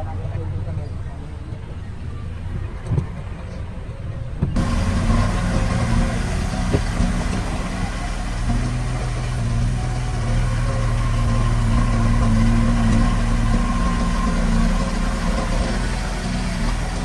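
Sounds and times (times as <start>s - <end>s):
heavy diesel engine running: 4.6s - 17.0s.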